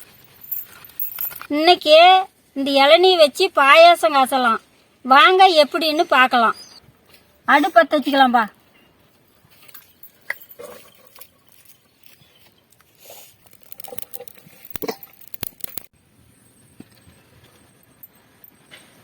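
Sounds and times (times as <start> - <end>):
rustling: 9.1 - 15.9
sharp metallic clicks: 13.4 - 15.9.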